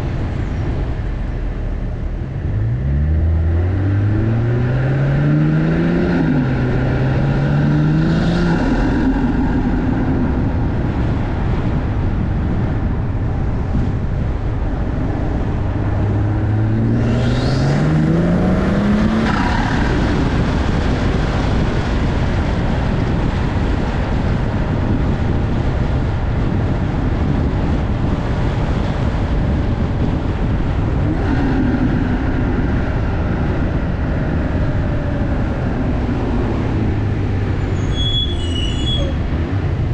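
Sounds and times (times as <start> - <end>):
car engine accelerating: 0.0 - 24.2
road and wind noise: 0.0 - 39.9.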